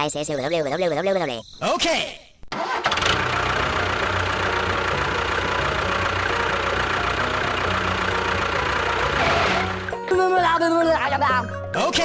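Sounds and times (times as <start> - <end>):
engine idling: 2.6 - 10.1.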